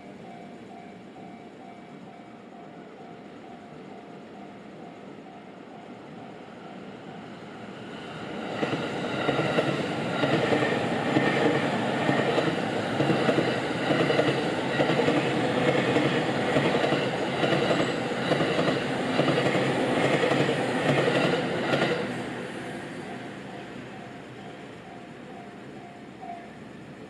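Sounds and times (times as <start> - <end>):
train wheels clacking over rail joints: 8.6 - 22.1.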